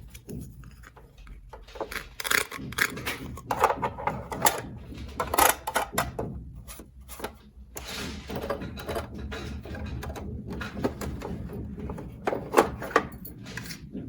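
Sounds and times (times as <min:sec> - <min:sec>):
plastic toy pieces clicking: 0:01.8 - 0:03.7.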